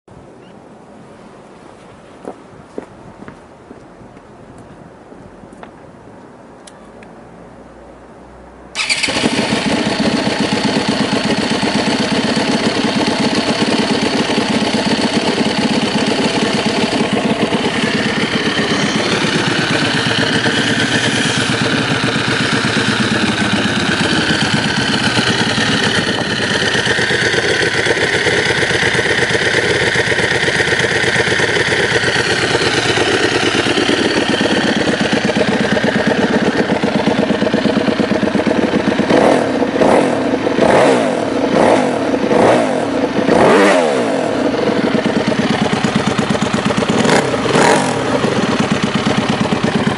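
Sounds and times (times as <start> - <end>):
motorcycle engine idling: 8.8 - 49.9.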